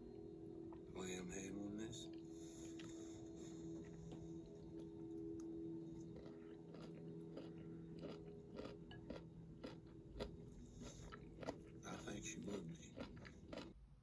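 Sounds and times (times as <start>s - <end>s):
quiet chewing: 2.0s - 13.9s
mouth clicks and crunches: 6.2s - 13.8s.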